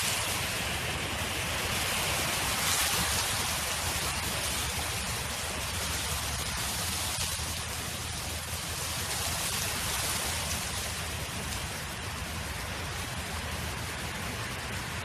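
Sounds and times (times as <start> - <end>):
wind noise: 0.0 - 15.0.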